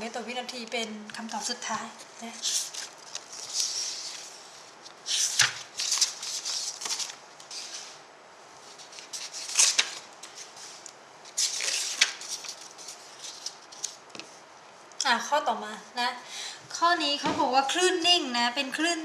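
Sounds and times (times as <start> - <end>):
paper rustling and scratching: 2.2 - 8.0, 8.6 - 14.3.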